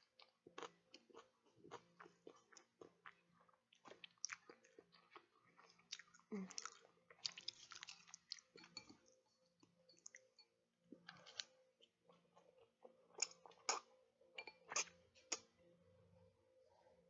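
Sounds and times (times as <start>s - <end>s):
chewing with wet mouth clicks: 0.1s - 9.2s.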